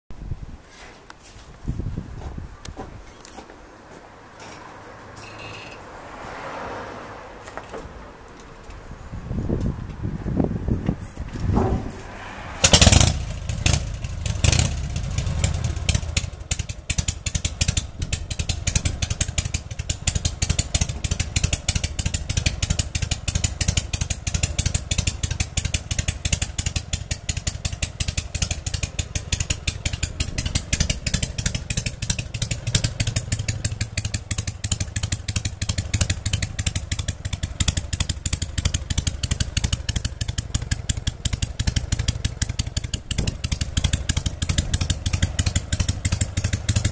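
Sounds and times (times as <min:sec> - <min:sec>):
loud engine bang: 0:11.3 - 0:16.4
motorcycle engine idling: 0:12.6 - 0:46.9.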